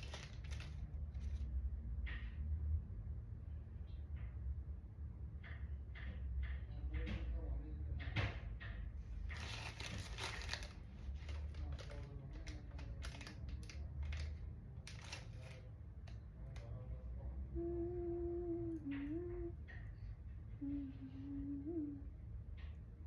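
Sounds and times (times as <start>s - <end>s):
packaging crinkling: 0.0s - 1.4s, 9.3s - 15.6s
person humming: 17.5s - 19.8s, 20.5s - 22.2s.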